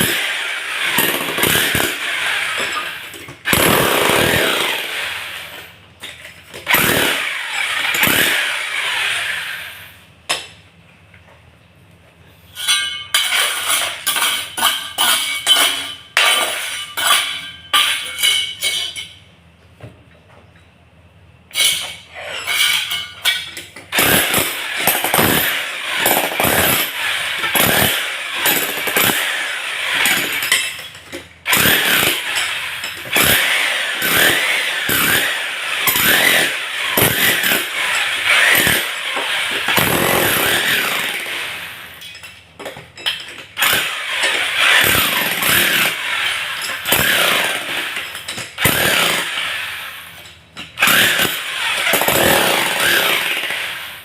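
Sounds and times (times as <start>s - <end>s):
electric power tool running: 3.6s - 5.0s, 6.7s - 9.6s, 31.5s - 41.7s.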